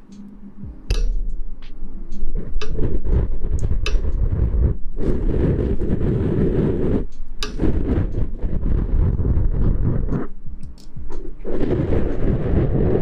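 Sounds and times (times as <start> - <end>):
rustling on microphone: 0.0 - 13.0
small clicks and taps: 0.1 - 4.4, 7.0 - 12.3.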